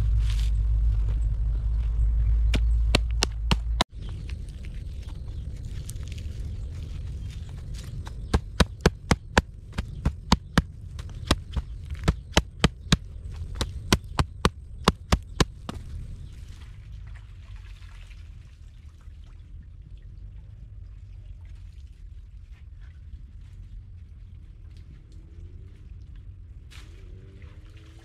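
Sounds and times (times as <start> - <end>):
low steady rumble: 0.0 - 28.0
sharp chopping knocks: 2.5 - 3.9, 8.1 - 15.8.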